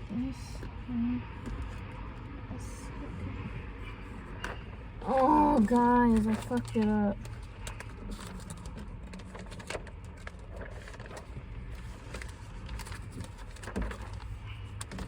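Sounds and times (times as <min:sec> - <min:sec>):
plastic film crackling: 0:05.0 - 0:15.0.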